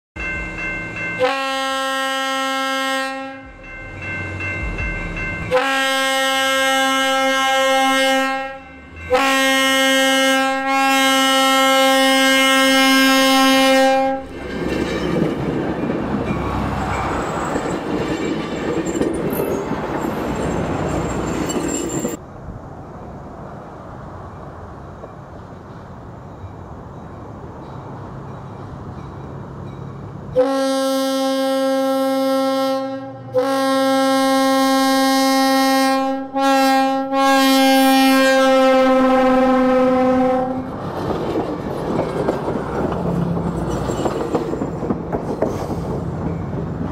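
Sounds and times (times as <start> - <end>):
train horn blasts: 1.2 - 3.8, 4.9 - 14.4, 30.3 - 40.8
train wheels running on rails: 3.4 - 7.0, 14.1 - 22.2, 40.4 - 46.9.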